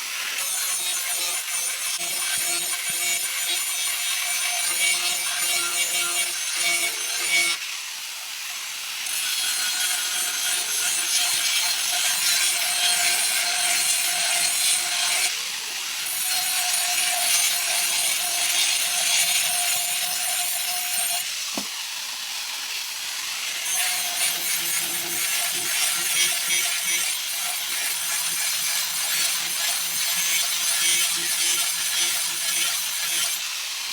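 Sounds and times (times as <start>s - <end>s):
steel blade being ground: 0.0s - 7.6s, 9.0s - 15.3s, 16.0s - 21.3s, 23.5s - 33.5s
sharp knock: 21.5s - 21.7s.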